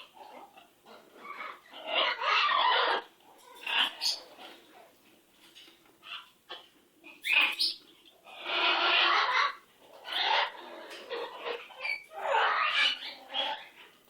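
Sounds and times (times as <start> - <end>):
parrot squawking: 0.1 - 4.4, 7.1 - 13.8.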